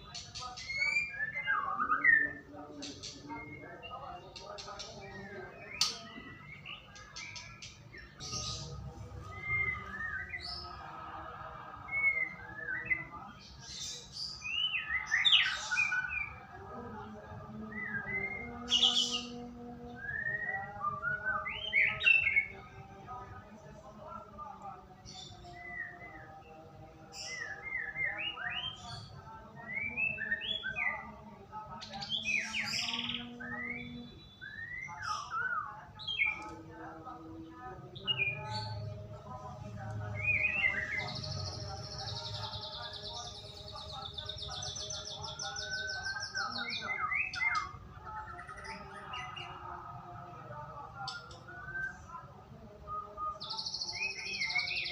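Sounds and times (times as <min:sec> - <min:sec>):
songbird singing: 0:00.0 - 0:11.0, 0:11.6 - 0:54.9
bird singing whistled phrases: 0:32.4 - 0:36.4.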